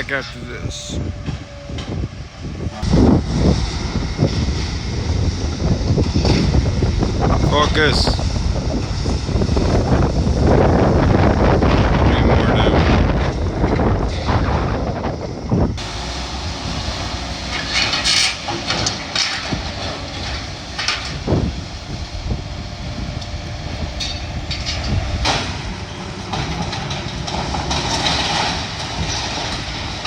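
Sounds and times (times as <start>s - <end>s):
heavy machinery engine rumble: 0.0s - 30.0s
debris crashing and clanking: 17.5s - 21.4s, 26.3s - 30.0s.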